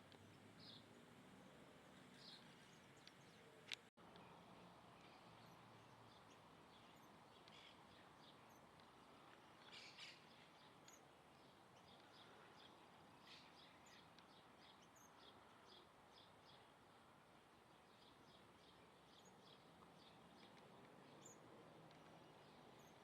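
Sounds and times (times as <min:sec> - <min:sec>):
faint birds chirping: 0:00.0 - 0:23.0.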